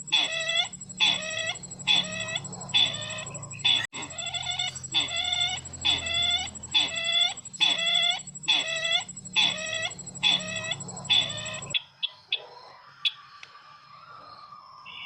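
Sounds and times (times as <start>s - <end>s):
bird clucking calls: 0.0s - 11.8s.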